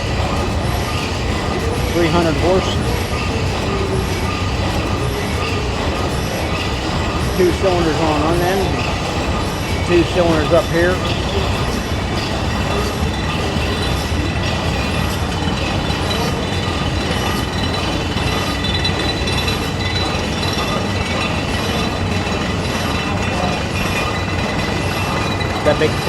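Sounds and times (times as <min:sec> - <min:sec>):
stationary engine clanking: 0:00.0 - 0:26.0.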